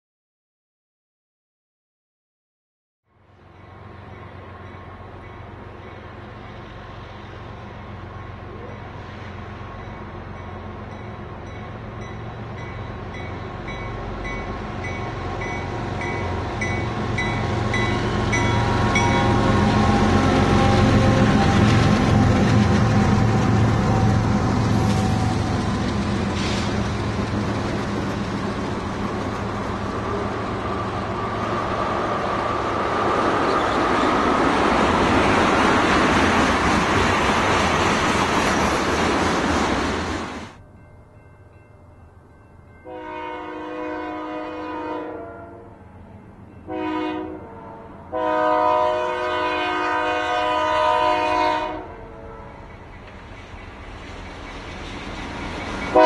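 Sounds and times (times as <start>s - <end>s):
locomotive engine rumble: 3.7s - 42.4s, 52.5s - 56.0s
rolling clatter of freight cars: 9.6s - 40.6s, 52.6s - 56.0s
crossing bell ringing: 9.8s - 20.1s, 40.6s - 43.6s.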